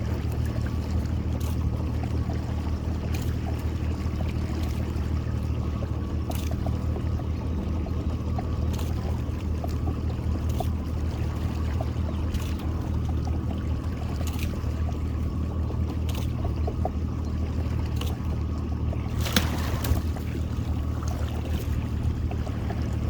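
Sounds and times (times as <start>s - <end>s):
boat motor idling: 0.0s - 23.0s
water splashing and dripping: 0.2s - 23.0s
loud splash or knock: 19.2s - 20.2s.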